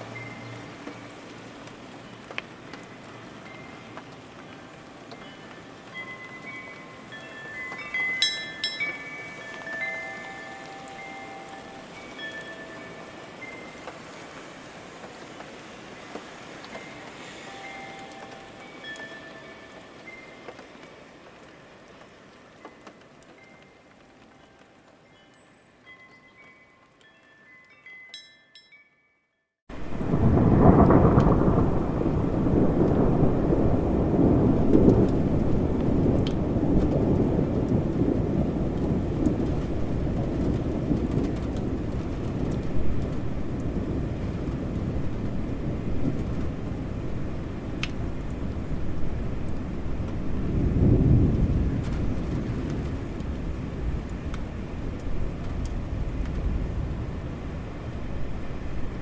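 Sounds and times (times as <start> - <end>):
steady rain: 0.0 - 27.8, 29.7 - 59.0
raindrop ticks: 0.1 - 17.0, 17.8 - 25.4, 29.7 - 56.8
thunder rumbling: 29.7 - 59.0.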